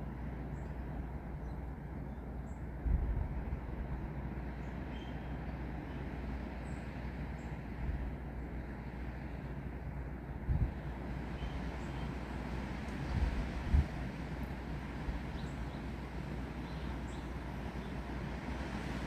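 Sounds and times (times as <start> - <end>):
wind in trees: 0.0 - 19.0
rain in trees: 10.7 - 19.0.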